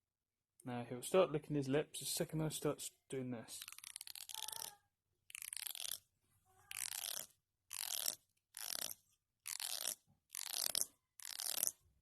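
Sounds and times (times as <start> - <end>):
comb teeth rasping: 3.6 - 11.8.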